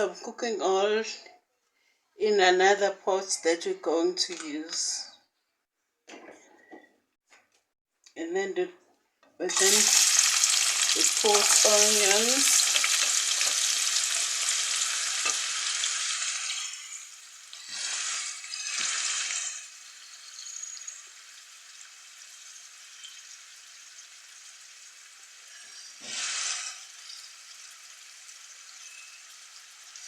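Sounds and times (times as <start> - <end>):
onions sizzling in oil: 9.5 - 30.0.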